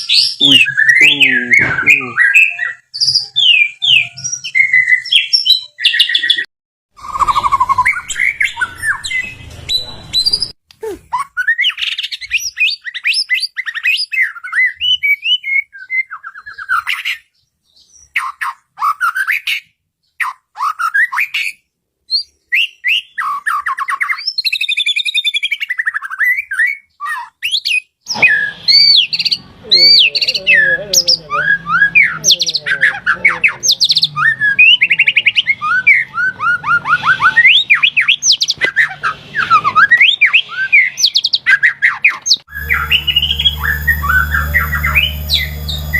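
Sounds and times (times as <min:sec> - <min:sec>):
shama whistles and trills: 0:00.0 - 0:17.0, 0:22.1 - 0:45.9
steady low hum: 0:42.5 - 0:45.9.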